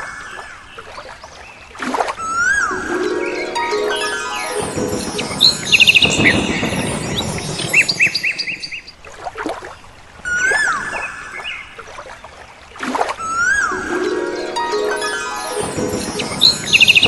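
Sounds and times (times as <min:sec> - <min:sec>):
whistled bird notes: 0:02.2 - 0:09.0, 0:15.0 - 0:17.0
birds chirping: 0:02.5 - 0:09.0, 0:14.9 - 0:17.0.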